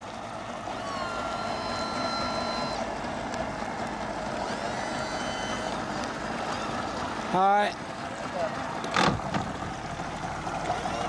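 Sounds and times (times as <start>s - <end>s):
motorboat engine and water: 0.0s - 11.0s
thin steady whine: 0.4s - 7.0s.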